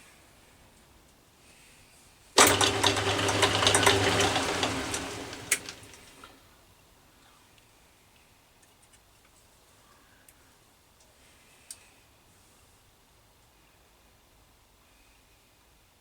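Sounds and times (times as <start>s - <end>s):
gears and belt clattering: 2.4s - 6.3s
metal lathe humming: 2.4s - 6.3s.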